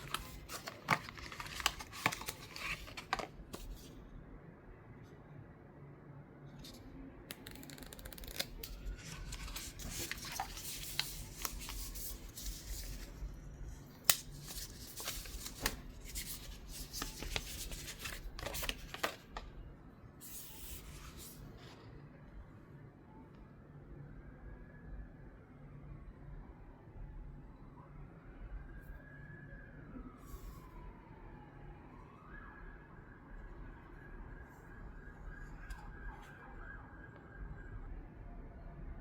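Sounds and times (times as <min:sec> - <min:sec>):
packaging rustling and tearing: 0:00.0 - 0:03.9, 0:07.3 - 0:13.2, 0:14.1 - 0:19.5.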